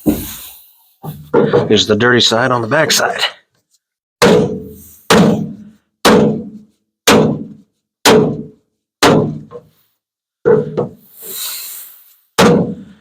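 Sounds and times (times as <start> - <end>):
hammer knocking on sheet metal: 4.2 - 9.6, 12.4 - 12.9.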